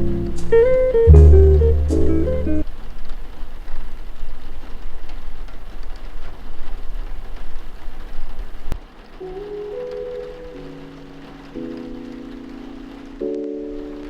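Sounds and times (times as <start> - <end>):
soft melody: 0.0 - 2.6, 9.2 - 14.0
steady rain: 0.0 - 14.0.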